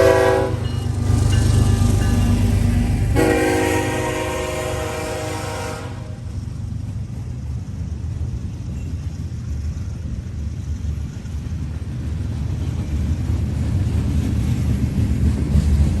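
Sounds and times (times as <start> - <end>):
locomotive horn: 0.0 - 0.7, 3.2 - 6.3
train rumbling: 0.0 - 16.0.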